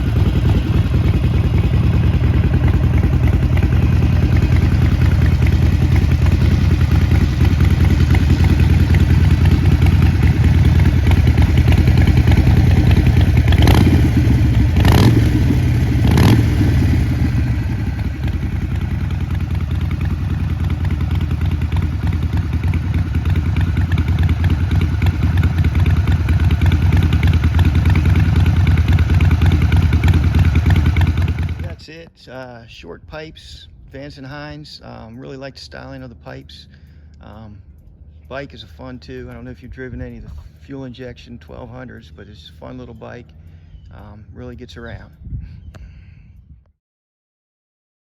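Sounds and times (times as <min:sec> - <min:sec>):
motorcycle engine idling: 0:00.0 - 0:31.8, 0:34.9 - 0:45.7.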